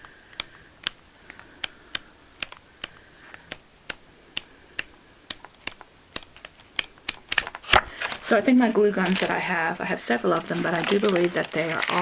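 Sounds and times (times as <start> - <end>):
paper pages flipping: 5.4 - 9.4, 10.2 - 12.0.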